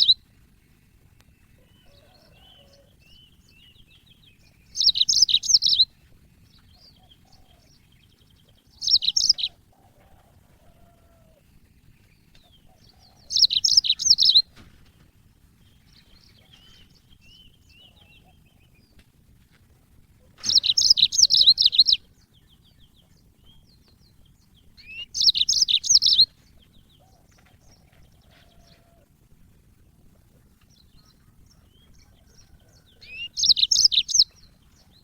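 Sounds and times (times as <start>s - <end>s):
soft bird chirps: 0.0s - 15.0s, 20.4s - 29.0s, 29.9s - 35.0s
canary trilling: 4.6s - 5.9s, 8.8s - 9.7s, 12.8s - 14.5s, 20.4s - 22.0s, 24.8s - 26.3s, 31.0s - 34.6s.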